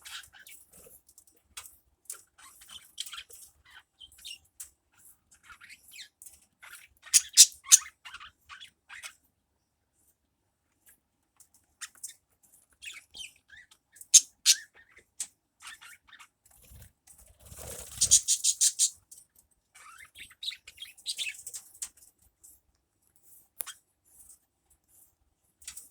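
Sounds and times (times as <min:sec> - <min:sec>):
small birds chirping: 0:02.3 - 0:09.2, 0:11.7 - 0:16.8, 0:17.4 - 0:22.6.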